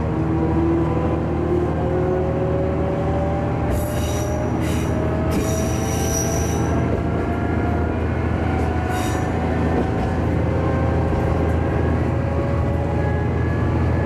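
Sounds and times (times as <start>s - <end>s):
diesel railcar engine hum: 0.0s - 14.0s
wheels squealing on rails: 3.7s - 7.6s, 8.6s - 10.4s.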